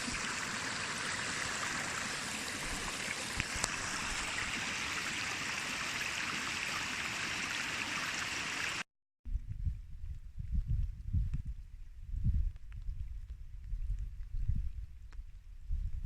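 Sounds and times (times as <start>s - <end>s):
low rumble: 9.3s - 16.0s.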